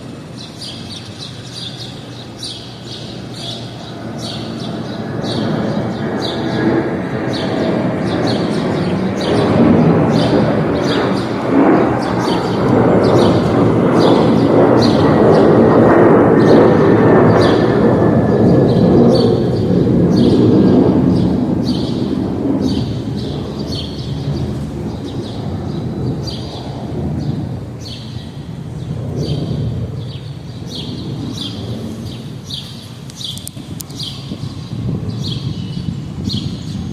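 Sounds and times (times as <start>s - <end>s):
small bird chirping: 29.2s - 36.9s
sharp clicks: 33.1s - 34.0s.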